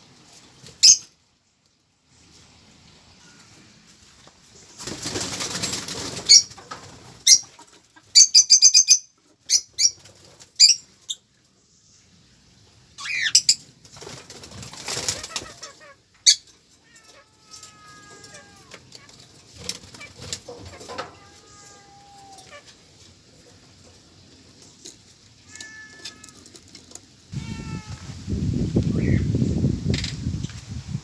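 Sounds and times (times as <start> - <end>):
birds flapping wings: 4.8 - 7.2, 13.8 - 15.8.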